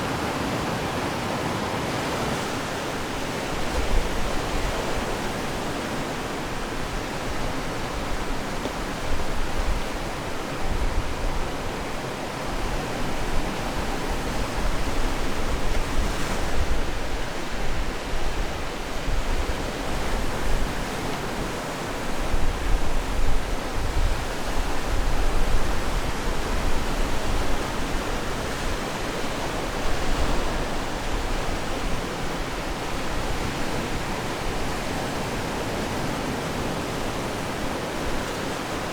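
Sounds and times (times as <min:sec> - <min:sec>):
waves breaking on shore: 0:00.0 - 0:38.9.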